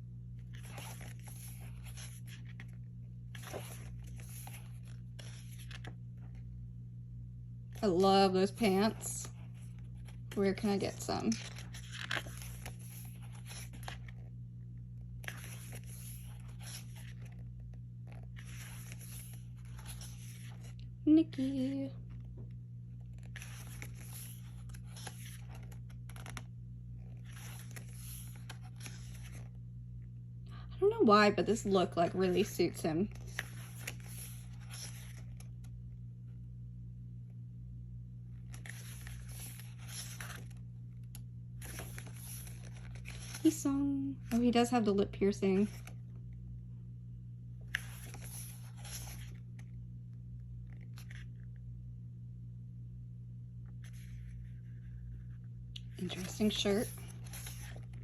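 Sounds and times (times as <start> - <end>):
steady low hum: 0.0 - 58.0
paper pages rustling: 0.3 - 6.5, 8.5 - 20.9, 22.0 - 29.6, 32.3 - 35.8, 38.3 - 44.6, 45.6 - 46.3, 47.6 - 51.6, 53.6 - 58.0.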